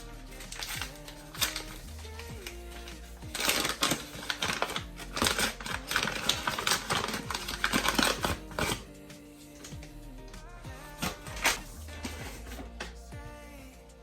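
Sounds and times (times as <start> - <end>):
soft background music: 0.0 - 14.0
packaging rustling and clicking: 2.4 - 8.8.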